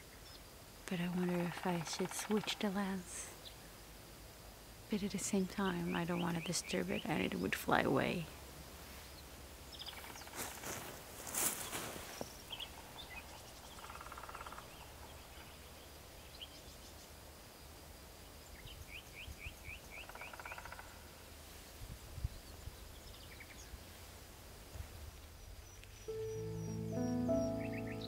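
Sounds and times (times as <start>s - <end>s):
small birds chirping: 4.9s - 8.2s, 9.0s - 17.2s, 25.3s - 28.0s
soft music: 26.1s - 28.0s.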